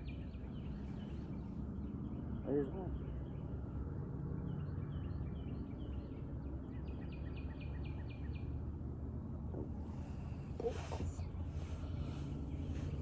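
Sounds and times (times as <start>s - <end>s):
low background noise: 0.0s - 13.0s.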